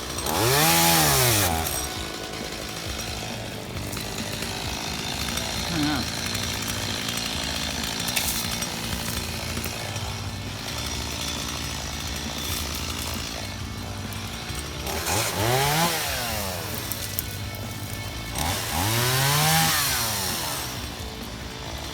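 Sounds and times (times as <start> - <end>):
chainsaw idling and revving: 0.0 - 21.9.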